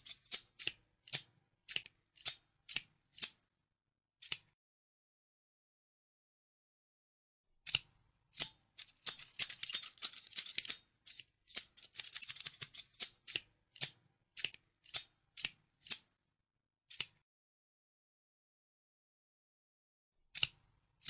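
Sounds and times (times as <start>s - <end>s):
scissors snipping: 0.0s - 3.4s, 4.2s - 4.6s, 7.6s - 16.1s, 16.9s - 17.2s, 20.3s - 20.6s.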